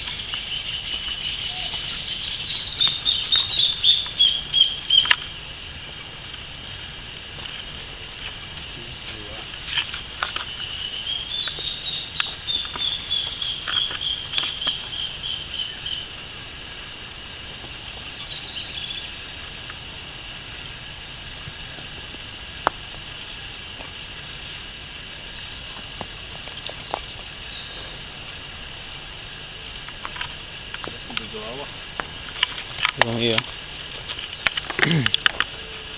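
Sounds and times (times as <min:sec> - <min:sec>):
bird singing high pulsing notes: 0:00.0 - 0:05.2, 0:09.3 - 0:16.1, 0:17.2 - 0:19.3, 0:23.1 - 0:25.8, 0:26.4 - 0:28.2
short downward bird call: 0:00.0 - 0:05.2.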